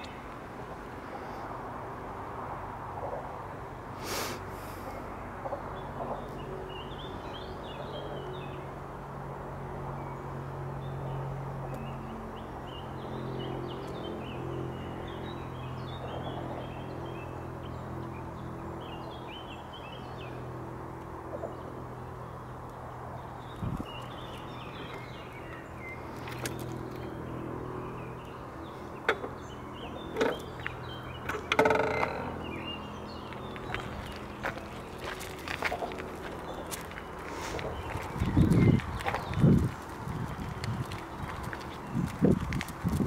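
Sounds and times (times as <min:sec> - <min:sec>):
songbirds chirping and singing: 0:21.4 - 0:43.0.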